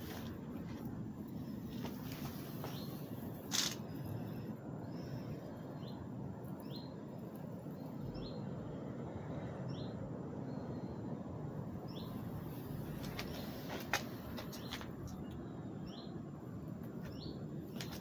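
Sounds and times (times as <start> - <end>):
bird chirping: 14.4 - 16.2, 17.0 - 18.0.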